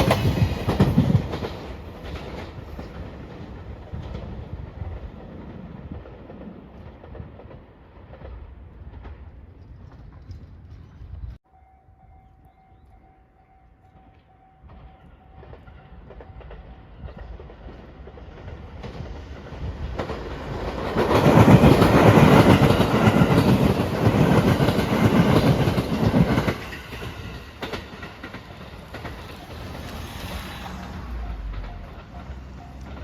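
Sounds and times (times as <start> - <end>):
wheels clicking over rail joints: 0.0 - 11.4, 13.8 - 33.0
train passing: 0.0 - 33.0
faint bell tone: 11.4 - 16.9.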